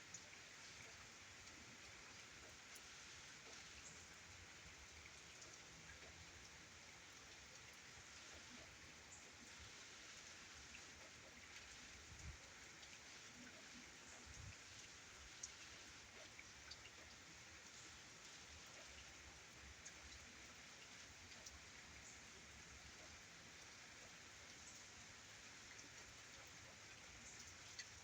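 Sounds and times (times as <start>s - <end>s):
light rain pattering: 0.0s - 28.0s.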